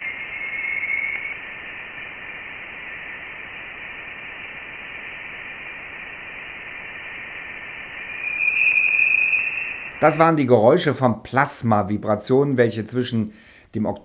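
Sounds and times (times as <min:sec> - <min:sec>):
whistle-like tone: 0:00.0 - 0:02.4, 0:08.0 - 0:10.0
static-like hiss: 0:00.0 - 0:14.0.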